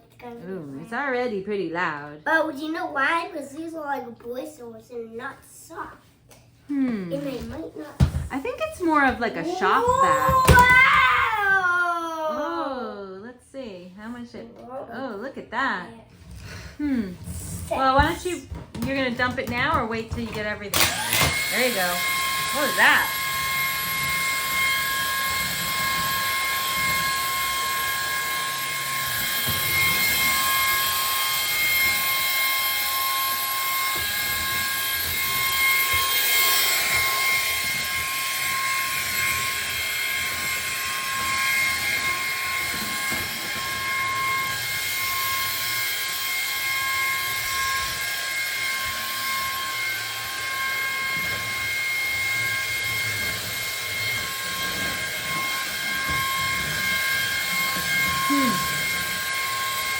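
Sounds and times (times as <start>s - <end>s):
stick vacuum running: 8.9s - 11.7s, 16.2s - 59.9s.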